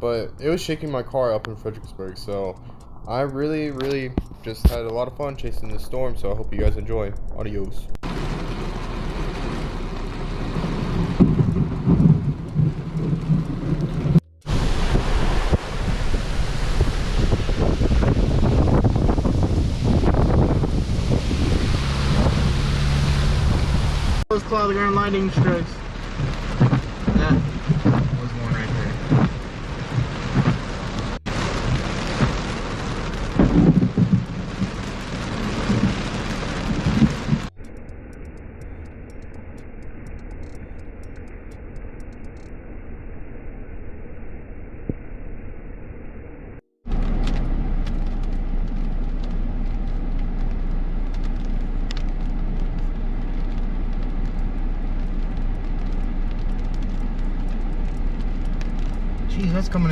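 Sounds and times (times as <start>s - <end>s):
sharp ticks against car body: 0.4s - 8.0s, 37.5s - 42.5s
wind buffeting a car: 0.4s - 37.6s
heavy rain: 8.0s - 37.5s, 46.9s - 59.9s
rolling thunder: 10.2s - 24.2s, 25.5s - 37.5s.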